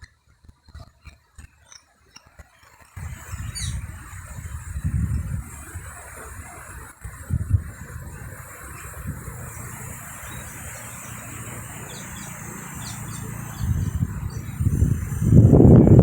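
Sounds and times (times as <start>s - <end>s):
high bird chirps: 3.3s - 3.9s, 8.6s - 16.0s
steady low rumble: 7.4s - 16.0s.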